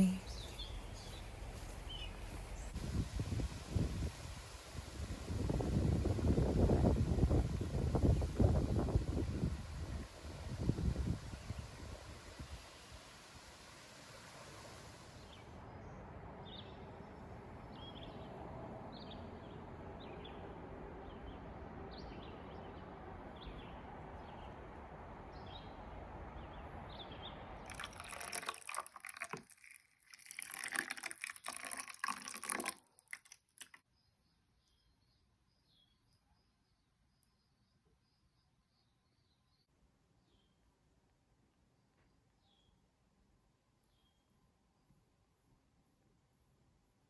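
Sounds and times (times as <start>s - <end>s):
water rushing: 27.6s - 33.8s
water splashing: 27.7s - 33.8s.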